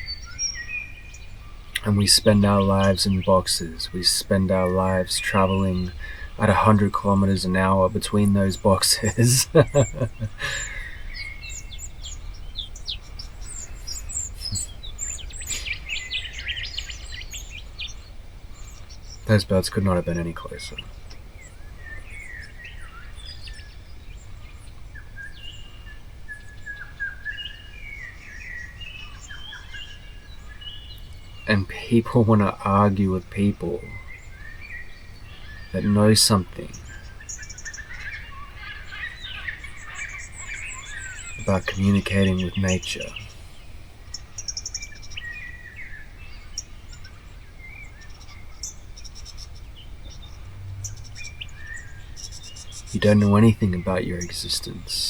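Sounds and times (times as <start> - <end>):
insect high-pitched trills: 0.0 - 18.0
small birds chirping and whistling: 0.0 - 55.0
steady low rumble: 1.2 - 15.4.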